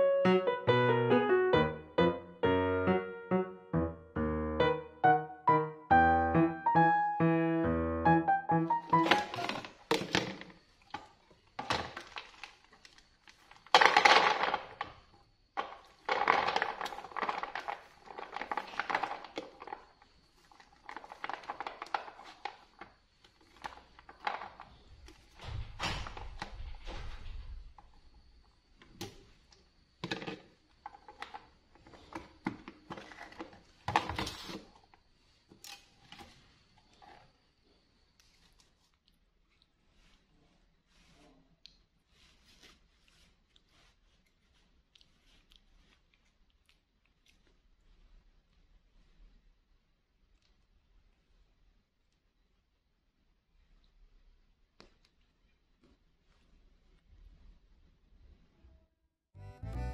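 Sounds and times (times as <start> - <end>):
plastic boxes knocking on counter: 9.0 - 10.5
peanuts rattling into plastic box: 11.6 - 15.0, 15.6 - 24.8.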